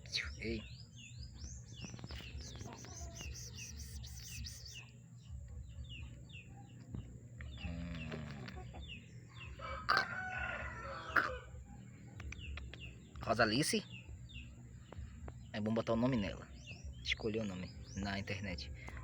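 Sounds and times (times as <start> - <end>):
small birds chirping: 0.0 - 19.0
lower bird call: 2.2 - 4.8.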